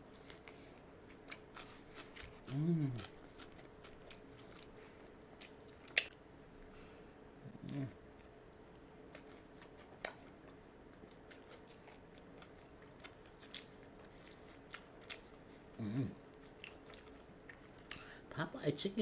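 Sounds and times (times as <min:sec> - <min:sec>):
crunchy chewing: 0:00.0 - 0:06.2, 0:09.0 - 0:18.1
person humming: 0:02.5 - 0:03.1, 0:07.4 - 0:08.0, 0:15.8 - 0:16.2.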